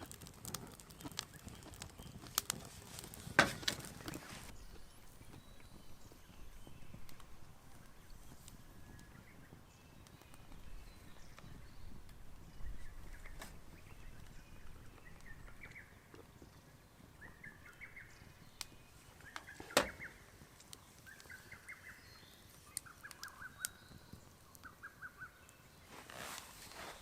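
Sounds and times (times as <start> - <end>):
rustling: 0.0 - 5.5, 25.8 - 27.0
birds chirping: 0.7 - 27.0.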